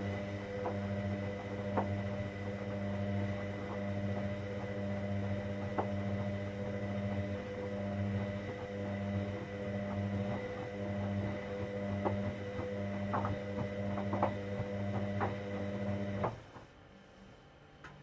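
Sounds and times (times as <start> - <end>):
washing machine humming: 0.0 - 18.0
small clicks and knocks: 12.0 - 15.4.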